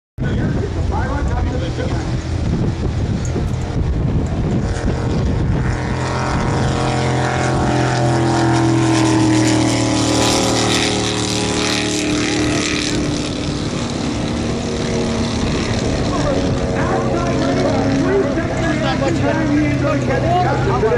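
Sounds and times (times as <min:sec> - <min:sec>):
boat engine running: 0:00.2 - 0:20.9.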